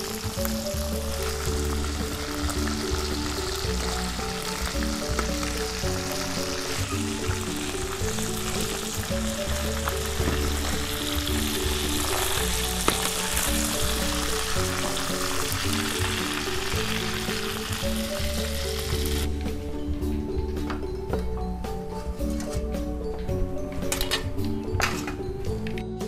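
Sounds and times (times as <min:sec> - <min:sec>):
fish sizzling in hot oil: 0:00.0 - 0:19.3
background music: 0:00.0 - 0:26.0.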